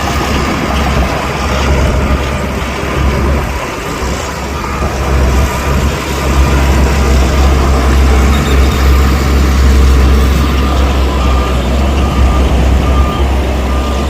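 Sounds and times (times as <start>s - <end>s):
heavy diesel engine rumbling: 0.0s - 14.0s.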